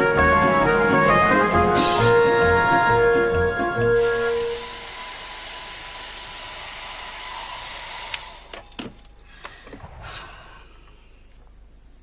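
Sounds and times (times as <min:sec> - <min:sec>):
hair dryer running: 0:00.6 - 0:08.5.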